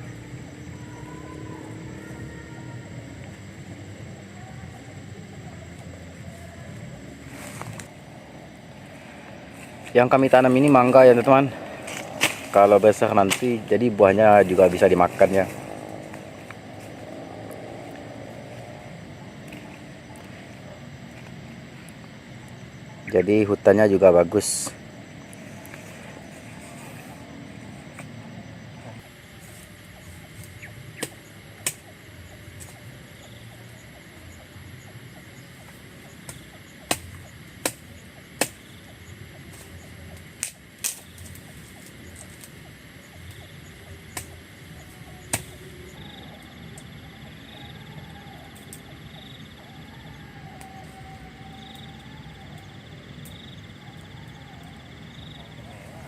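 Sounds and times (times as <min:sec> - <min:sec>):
faint high call: 0:00.0 - 0:03.4
outdoor background noise: 0:00.0 - 0:56.0.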